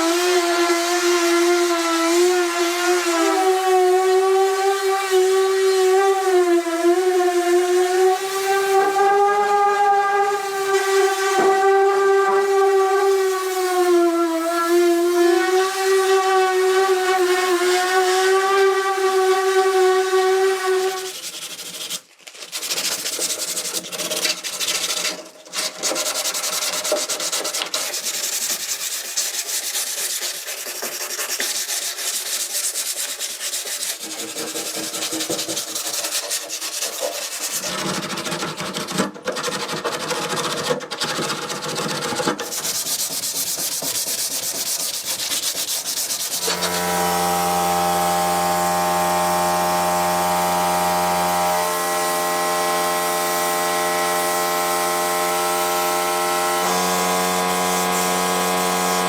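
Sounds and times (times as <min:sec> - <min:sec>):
abrasive sanding: 0:00.2 - 0:38.9, 0:41.2 - 0:59.0
power tool whining: 0:46.3 - 0:59.0.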